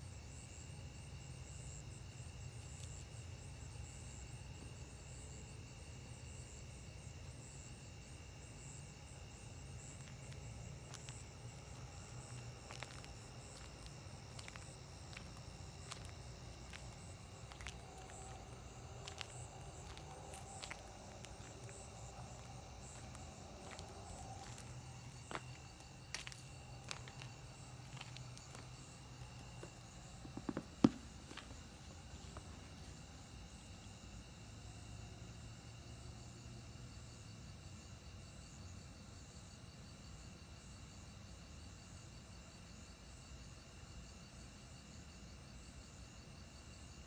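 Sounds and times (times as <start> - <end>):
insects trilling: 0.0 - 35.5.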